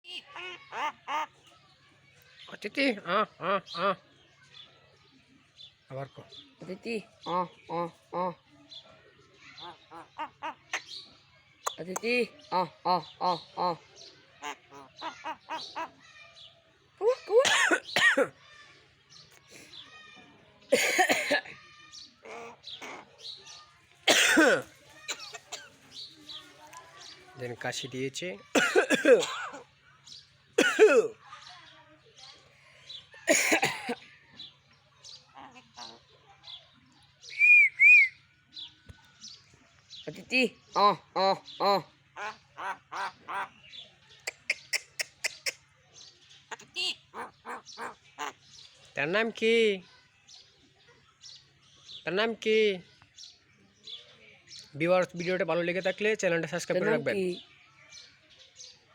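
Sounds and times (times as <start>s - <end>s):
mynas giving harsh rasping calls: 0.0s - 1.5s, 9.5s - 18.4s, 20.8s - 26.4s, 35.1s - 36.1s, 40.3s - 45.7s, 46.4s - 48.7s.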